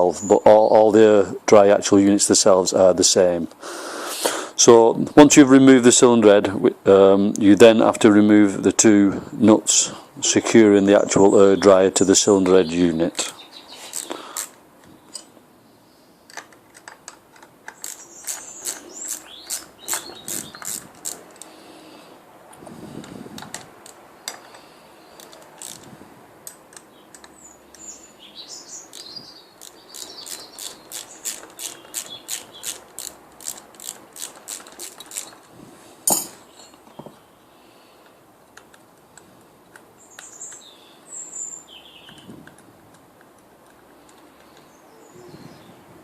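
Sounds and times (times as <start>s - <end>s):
ratchet spanner clicking: 16.3s - 21.6s, 25.2s - 27.9s, 28.9s - 35.4s.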